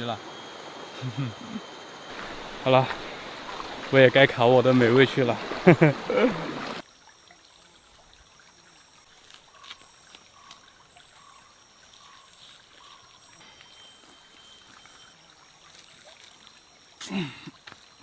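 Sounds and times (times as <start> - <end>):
high-pitched drone: 0.0 - 5.4, 13.4 - 15.4
stream trickling: 0.0 - 18.0
thin held tone: 12.8 - 15.4.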